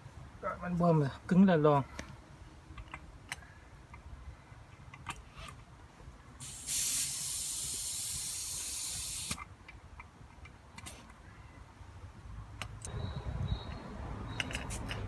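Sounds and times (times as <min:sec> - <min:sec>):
compressed air hissing: 0:06.4 - 0:09.4.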